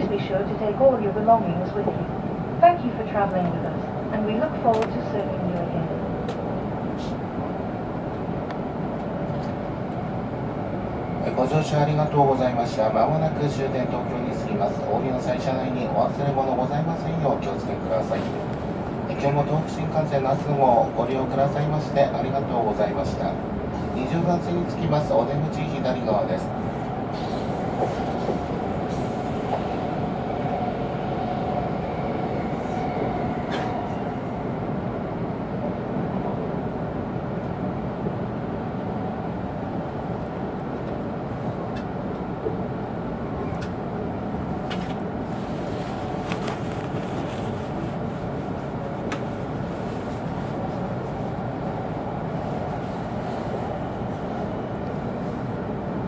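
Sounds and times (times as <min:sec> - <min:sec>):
train interior rumble: 0:00.0 - 0:56.0.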